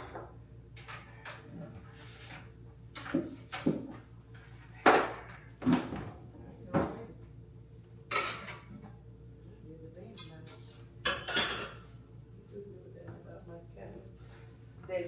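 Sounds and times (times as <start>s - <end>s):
household objects knocking and clattering: 3.0s - 4.0s.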